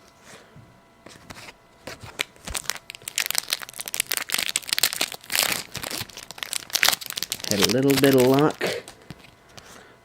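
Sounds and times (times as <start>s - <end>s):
wrapper crinkling: 1.9s - 9.3s.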